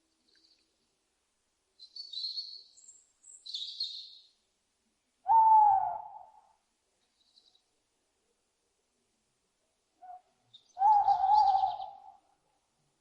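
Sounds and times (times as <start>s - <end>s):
owl hooting: 5.2s - 6.5s, 10.0s - 12.2s.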